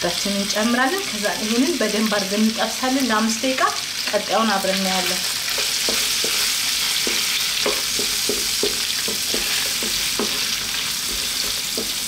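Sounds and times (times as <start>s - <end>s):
food sizzling in a frying pan: 0.0s - 12.0s
wooden spatula scraping a pan: 5.1s - 12.0s.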